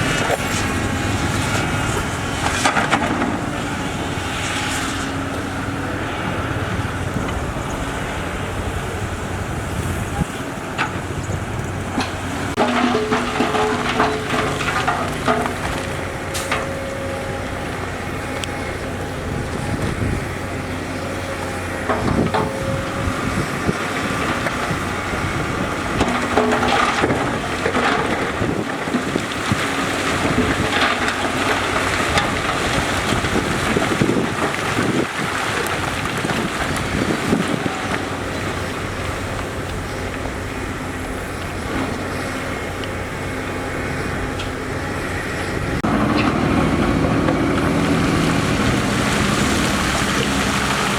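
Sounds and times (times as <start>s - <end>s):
heavy machinery diesel engines: 0.0s - 50.9s
knocks and clanks of machines: 11.9s - 17.1s, 21.8s - 40.3s.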